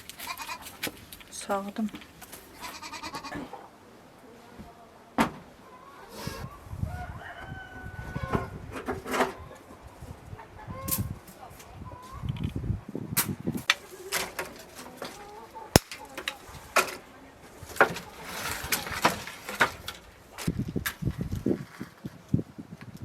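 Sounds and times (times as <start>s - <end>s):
chickens clucking: 2.4s - 12.8s, 13.6s - 20.5s.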